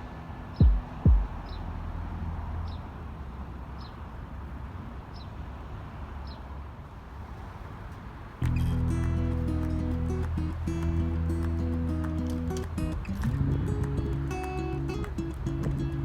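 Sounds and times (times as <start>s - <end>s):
passing traffic rumble: 0.0s - 16.0s
loud low thump: 0.6s - 1.6s.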